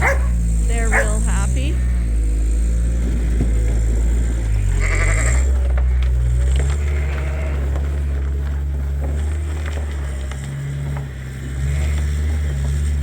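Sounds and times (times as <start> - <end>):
lamb bleating: 4.5 - 5.6, 6.6 - 8.1.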